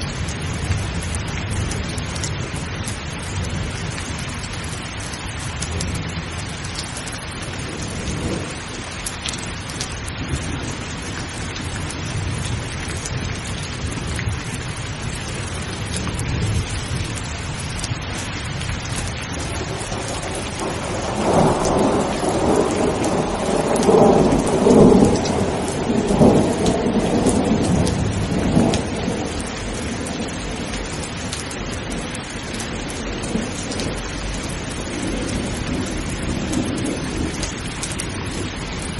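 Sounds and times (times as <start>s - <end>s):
low rumble of thunder: 0.0s - 38.9s
steady rain: 0.0s - 38.9s
loud roll of thunder: 19.4s - 31.3s.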